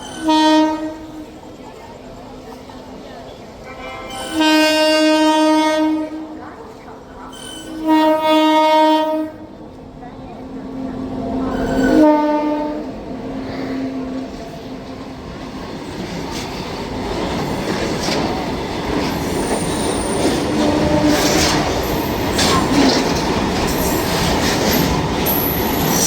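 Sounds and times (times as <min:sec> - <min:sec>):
train horn: 0:00.0 - 0:01.4, 0:03.6 - 0:06.4, 0:07.4 - 0:09.6, 0:10.8 - 0:14.8, 0:19.4 - 0:23.0
train wheel rumble: 0:00.0 - 0:26.0
clacks over rail joints: 0:15.3 - 0:26.0.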